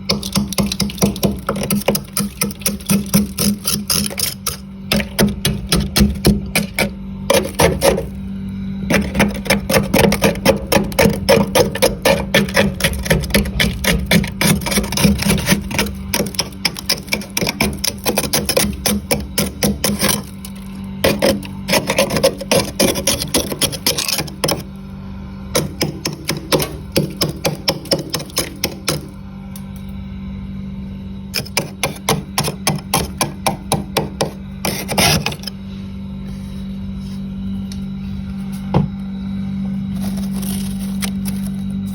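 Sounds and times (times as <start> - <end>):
frost being scraped: 0.0 - 8.2, 8.9 - 24.7, 25.6 - 29.1, 34.2 - 35.6, 39.9 - 41.9
steady low hum: 0.0 - 41.9.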